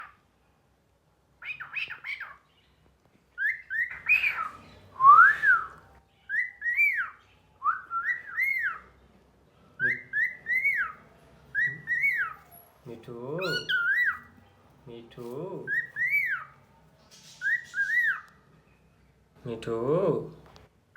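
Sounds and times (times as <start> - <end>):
cockatiel whistling: 3.4 - 5.7, 6.3 - 8.8, 9.8 - 12.5, 13.4 - 14.3, 15.7 - 16.5, 17.2 - 18.3.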